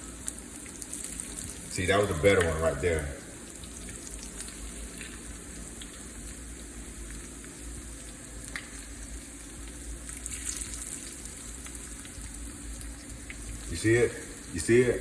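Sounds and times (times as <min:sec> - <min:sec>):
food deep-frying in hot oil: 0:00.0 - 0:15.0
oil popping: 0:07.0 - 0:14.7.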